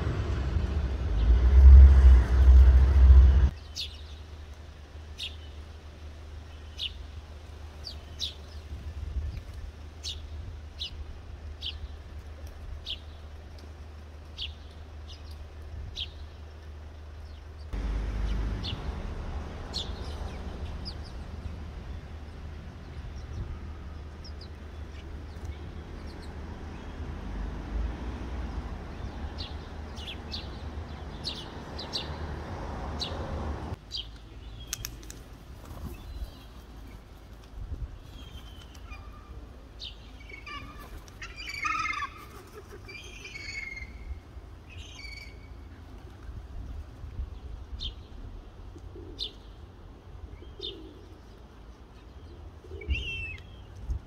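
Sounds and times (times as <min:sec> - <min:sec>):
birds chirping: 0:17.2 - 0:27.2, 0:28.8 - 0:33.3.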